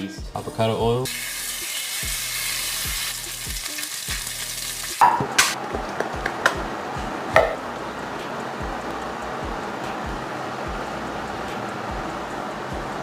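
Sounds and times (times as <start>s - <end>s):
chicken sizzling in a pan: 1.0s - 5.6s.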